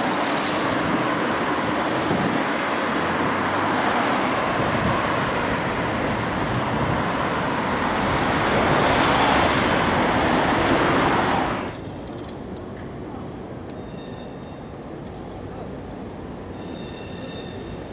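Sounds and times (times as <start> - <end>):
street background noise: 0.0 - 17.9
vehicle passing close by: 3.5 - 11.7.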